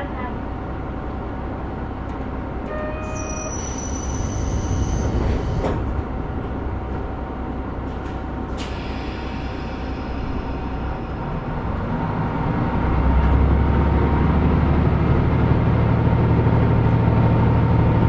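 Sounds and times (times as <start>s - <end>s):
diesel railcar engine running: 0.0s - 18.0s
doors sliding shut: 2.1s - 10.1s.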